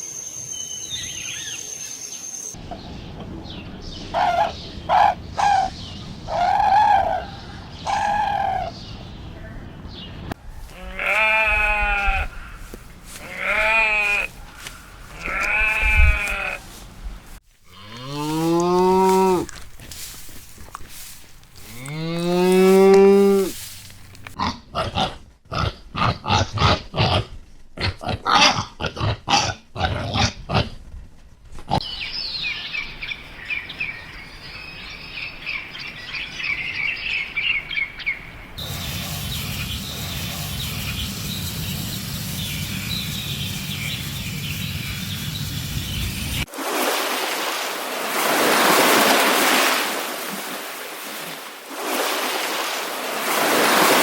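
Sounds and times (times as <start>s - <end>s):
farm animals bleating: 10.6s - 16.8s, 17.7s - 19.6s, 21.6s - 23.6s
steady hiss: 38.6s - 46.5s.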